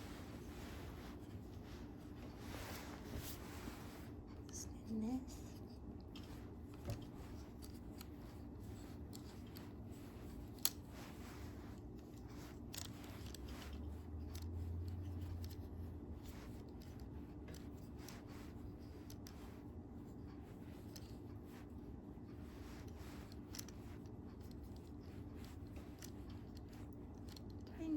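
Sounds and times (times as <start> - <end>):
small clicks and rattles: 4.3 - 27.9.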